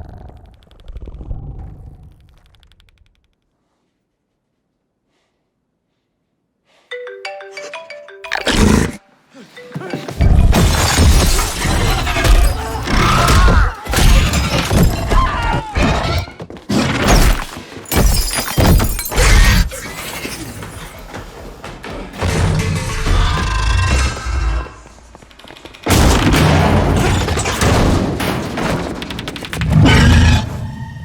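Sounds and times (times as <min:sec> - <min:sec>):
crashing and breaking: 0:10.4 - 0:21.0.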